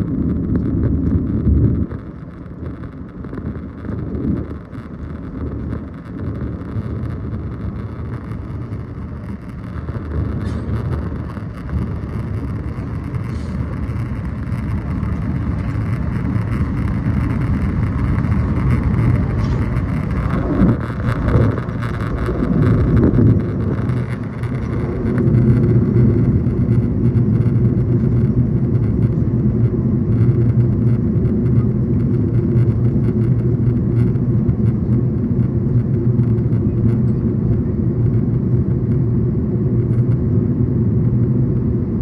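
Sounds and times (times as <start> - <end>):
airliner cabin engine rumble: 0.0 - 42.0.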